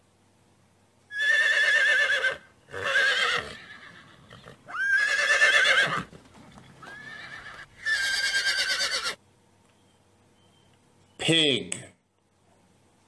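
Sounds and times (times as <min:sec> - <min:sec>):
horse whinnying: 0:01.1 - 0:09.2.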